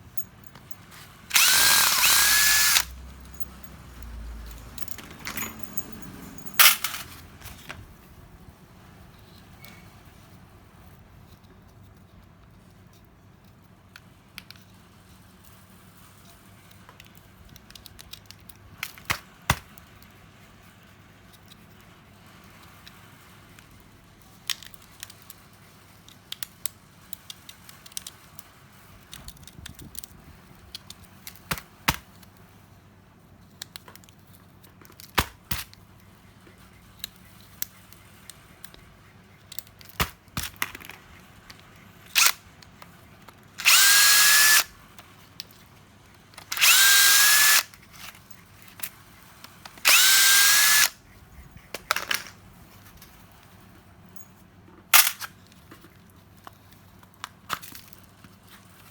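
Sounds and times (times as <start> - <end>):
tools and small parts clicking: 0.0 - 7.7, 16.7 - 19.2, 26.0 - 31.6, 36.9 - 50.9, 51.7 - 52.4
cordless power tool whining: 1.3 - 3.4, 43.6 - 44.7, 46.5 - 47.7, 49.8 - 50.9.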